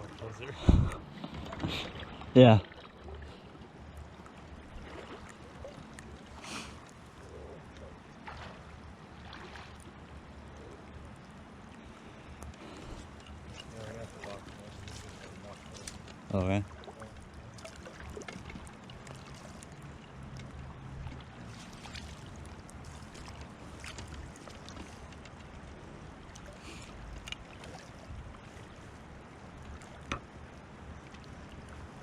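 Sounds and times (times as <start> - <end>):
wind on microphone: 0.0 - 1.6.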